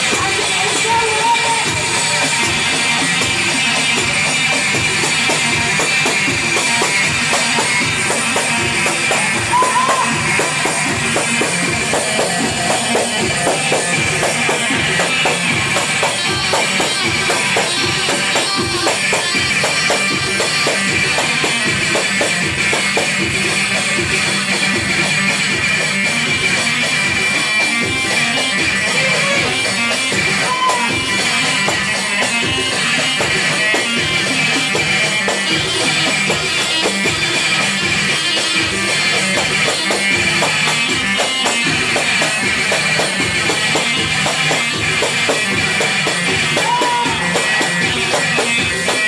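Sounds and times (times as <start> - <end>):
fast percussion beat: 0.0 - 49.0.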